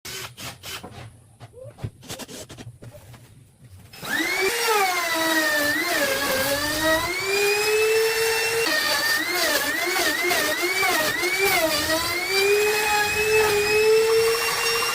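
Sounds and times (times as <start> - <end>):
power tool whining: 3.9 - 14.9.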